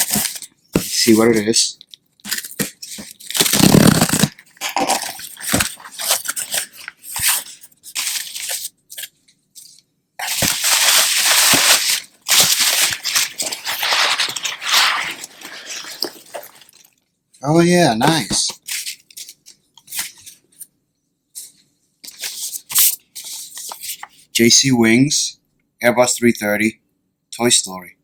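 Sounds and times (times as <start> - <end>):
packaging being torn open: 0.0 - 1.2, 2.2 - 9.1, 10.2 - 16.9.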